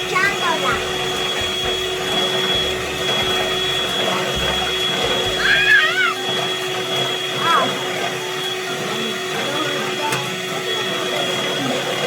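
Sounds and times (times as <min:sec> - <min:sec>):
electric mixer motor running: 0:00.0 - 0:12.0
high-pitched voice-like sound: 0:05.4 - 0:06.2.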